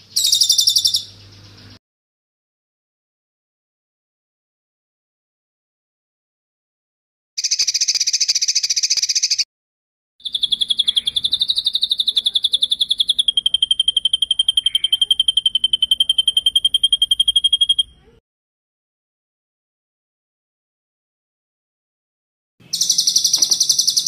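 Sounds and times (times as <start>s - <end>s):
harsh buzzy bird call: 0.0s - 1.8s, 10.2s - 18.1s, 22.6s - 24.0s
rapid rolling bird trill: 0.0s - 1.8s, 7.4s - 9.4s, 10.2s - 18.1s, 22.6s - 24.0s.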